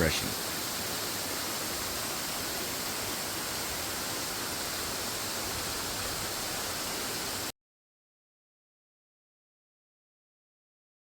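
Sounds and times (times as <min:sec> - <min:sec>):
small waterfall splashing over rocks: 0:00.0 - 0:07.5.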